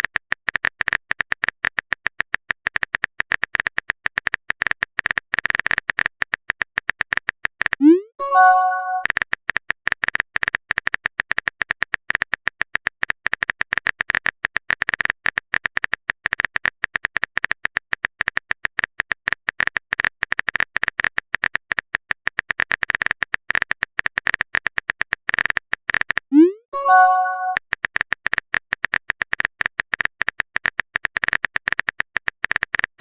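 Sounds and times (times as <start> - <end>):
keyboard typing clicks: 3.4 - 9.2, 24.1 - 27.6
message sent swoop and chime: 7.8 - 9.1, 26.3 - 27.6.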